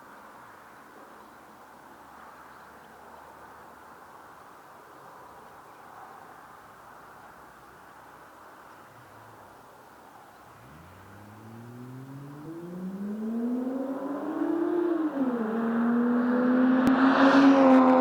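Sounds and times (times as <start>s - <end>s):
car exhaust accelerating: 10.4s - 18.0s.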